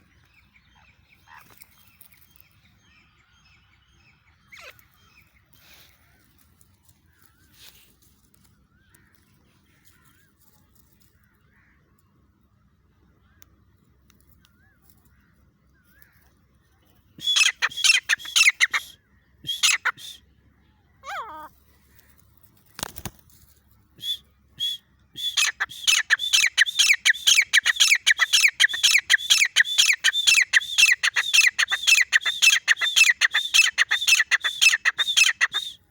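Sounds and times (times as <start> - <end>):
francolin calling: 17.2 - 20.2, 24.0 - 35.9.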